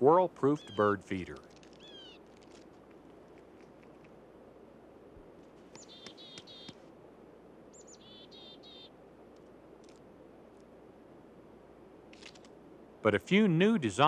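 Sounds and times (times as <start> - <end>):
faint background hiss: 0.0 - 14.0
songbird calling: 0.4 - 2.2, 5.6 - 6.9, 7.7 - 9.0.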